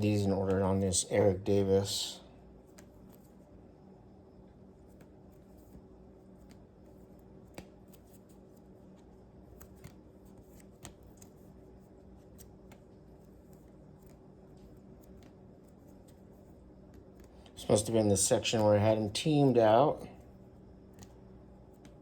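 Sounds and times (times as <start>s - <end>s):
steady low hum: 0.0s - 22.0s
binder pages turning: 4.8s - 19.3s.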